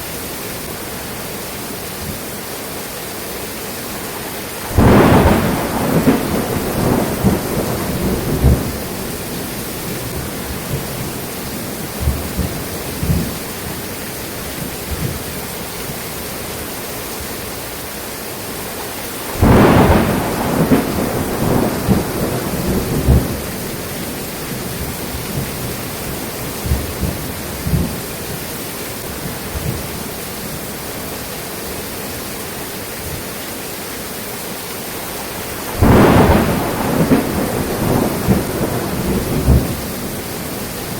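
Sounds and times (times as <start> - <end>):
heavy rain: 0.0 - 40.9
loud thunderclap: 4.7 - 11.0, 12.0 - 13.4, 19.3 - 25.7, 26.4 - 28.1, 35.6 - 40.7
low thunder rumbles: 4.7 - 13.8, 19.3 - 30.7, 35.3 - 40.9.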